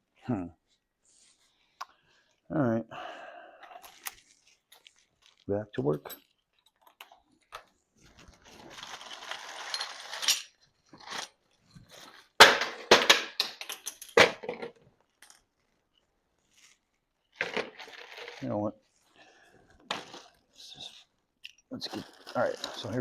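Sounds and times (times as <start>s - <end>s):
metal tools scraping and rustling: 8.6s - 11.3s.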